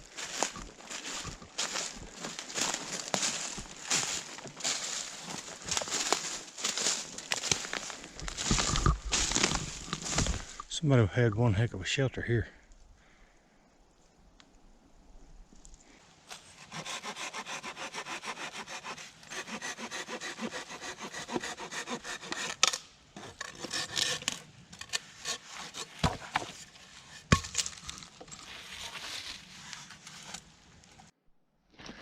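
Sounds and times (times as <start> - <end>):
wood scraping: 0.0 - 10.8, 16.3 - 31.1
wood cracking: 0.2 - 10.7
hand saw cutting wood: 16.5 - 27.3.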